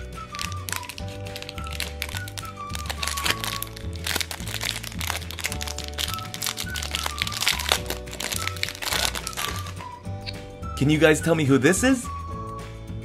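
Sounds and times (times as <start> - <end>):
plastic wrapper crinkling: 0.0 - 9.9
background music with bass line: 0.0 - 13.0.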